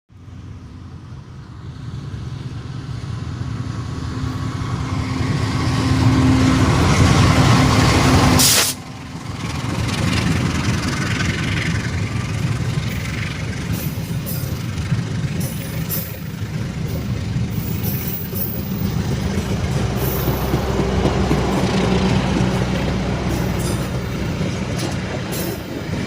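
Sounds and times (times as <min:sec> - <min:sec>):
train running: 0:00.2 - 0:26.0
sharp hiss: 0:08.4 - 0:08.9.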